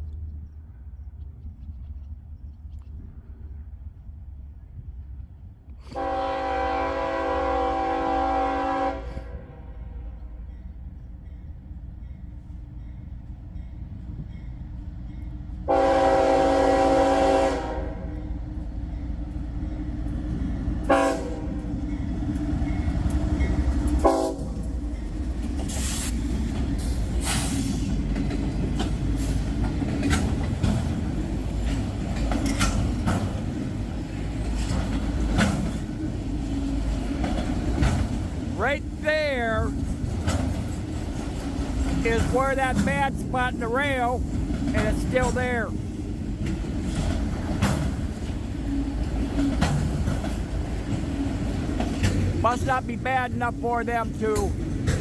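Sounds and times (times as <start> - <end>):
freight train rumbling: 0.0 - 55.0
locomotive air horn blast: 5.8 - 10.0, 15.7 - 18.2, 20.9 - 21.6, 24.0 - 24.6
sharp clicks and clanks of rail: 17.1 - 55.0.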